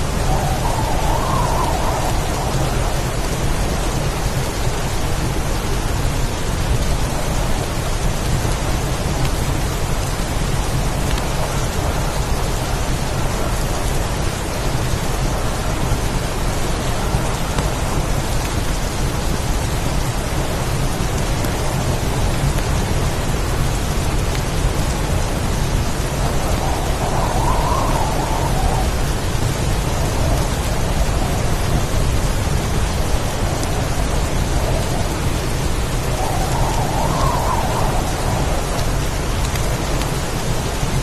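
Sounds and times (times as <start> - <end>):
heavy rain: 0.0 - 41.0.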